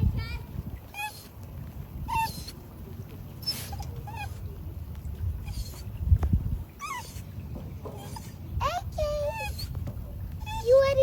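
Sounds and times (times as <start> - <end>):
dog whimpering: 2.1 - 2.6, 3.4 - 4.4, 5.4 - 5.8, 6.8 - 7.2, 8.0 - 9.8, 10.4 - 10.8.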